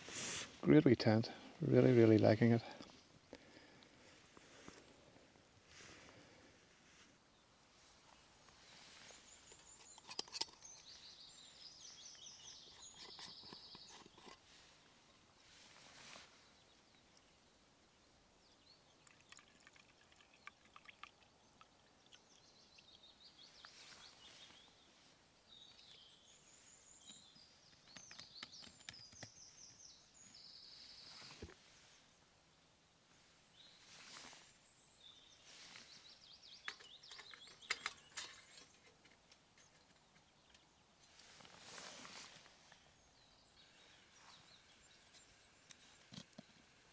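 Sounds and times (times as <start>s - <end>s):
small bird singing trills: 9.1s - 14.4s.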